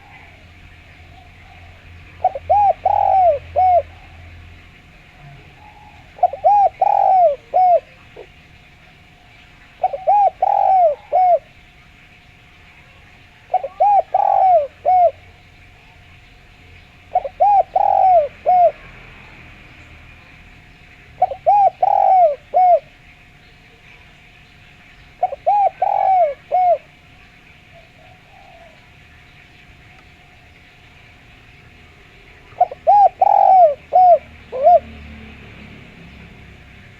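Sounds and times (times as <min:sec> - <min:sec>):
dove cooing: 0:00.0 - 0:11.8, 0:12.8 - 0:19.0, 0:21.0 - 0:24.1, 0:25.1 - 0:29.2, 0:32.2 - 0:35.4.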